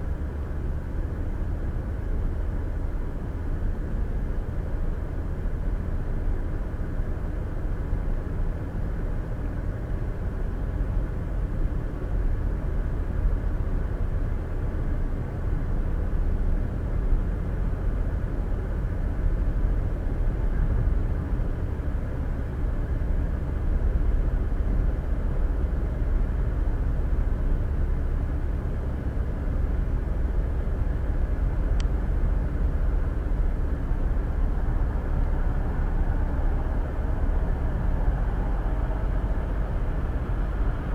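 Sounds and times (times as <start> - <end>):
car driving tyre and road noise: 0.0 - 40.9
faint tick: 31.7 - 32.0.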